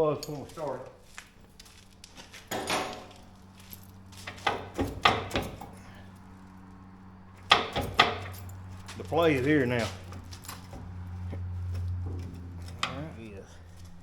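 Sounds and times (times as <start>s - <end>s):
knocking and metallic rattling: 4.2s - 6.0s, 7.3s - 8.8s, 10.0s - 13.1s.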